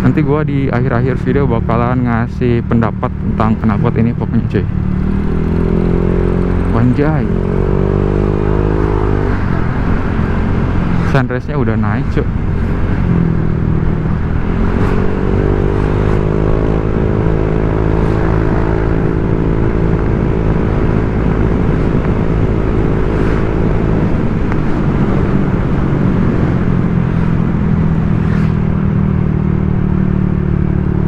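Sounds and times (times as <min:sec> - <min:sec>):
scooter engine running: 0:03.2 - 0:11.0.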